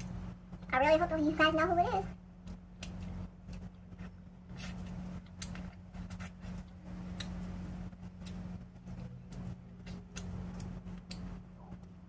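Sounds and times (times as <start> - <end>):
low steady hum: 0.0 - 12.0
chewing clicks: 2.4 - 12.0.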